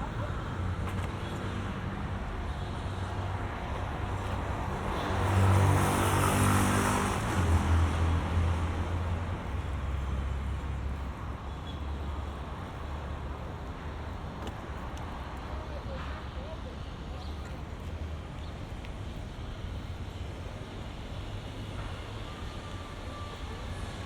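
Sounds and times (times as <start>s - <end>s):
road traffic: 0.0s - 24.0s
vehicle passing close: 3.4s - 11.1s.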